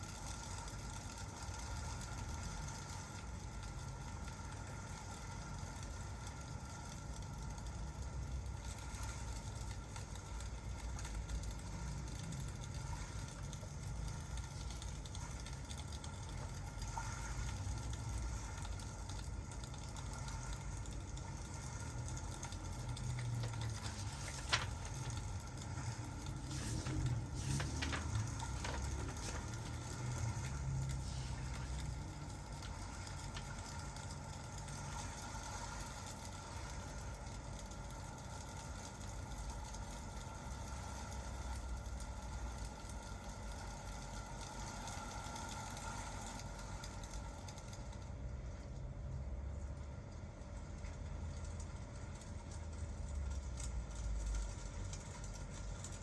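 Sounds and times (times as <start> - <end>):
fireplace crackling and popping: 0.0 - 48.9
steady low rumble: 20.7 - 34.6.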